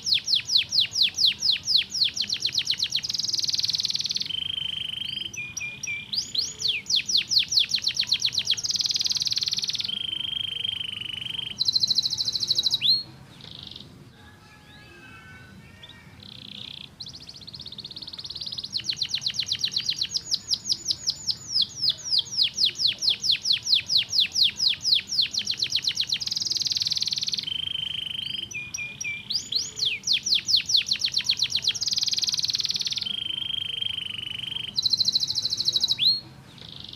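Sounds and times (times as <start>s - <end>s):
canary singing trills: 0.0s - 36.9s.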